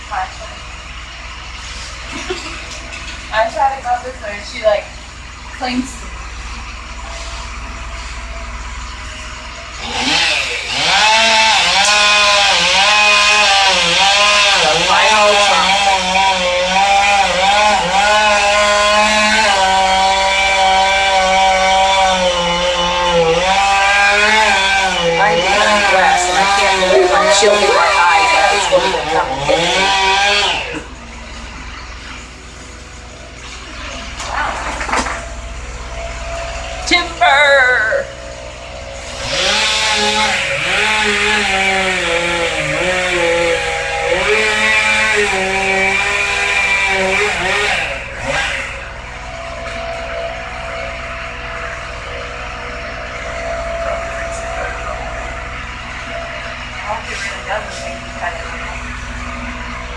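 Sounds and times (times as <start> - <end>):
chainsaw cutting into tree trunk: 9.8 - 31.0, 38.2 - 56.9.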